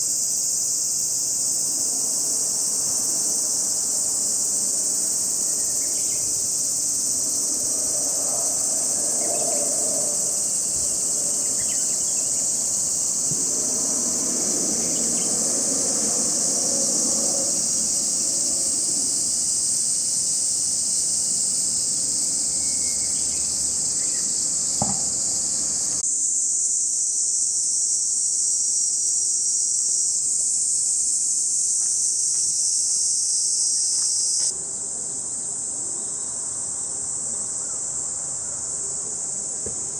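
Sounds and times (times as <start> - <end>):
cicadas calling: 0.0 - 39.9.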